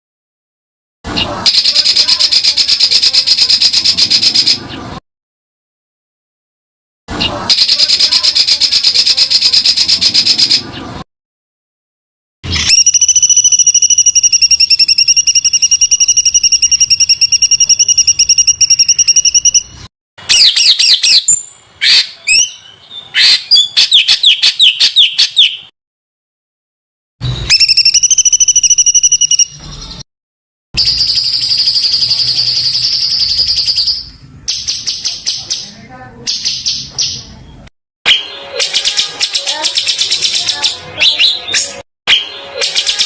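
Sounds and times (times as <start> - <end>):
bird quick chirps and whistles: 20.3 - 25.6, 27.4 - 30.0.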